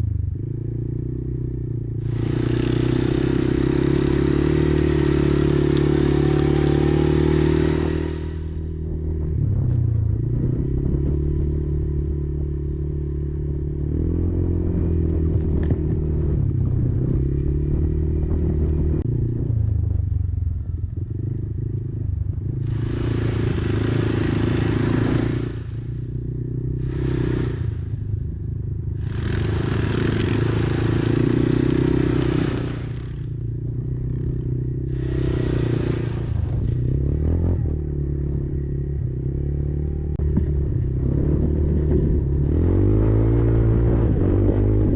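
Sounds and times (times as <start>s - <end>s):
quad engine running: 0.0s - 44.9s
bursts of rushing noise: 34.9s - 37.8s.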